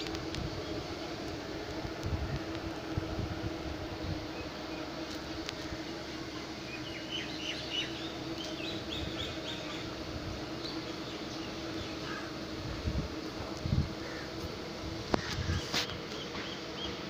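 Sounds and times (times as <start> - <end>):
bird chirping: 6.7 - 9.9.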